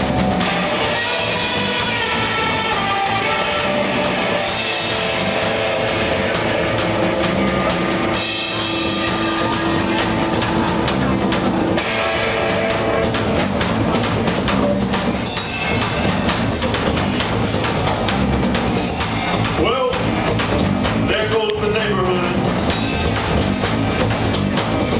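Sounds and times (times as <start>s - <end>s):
sustained electric guitar notes: 0.0s - 14.6s
drum kit with cymbals: 0.0s - 24.9s.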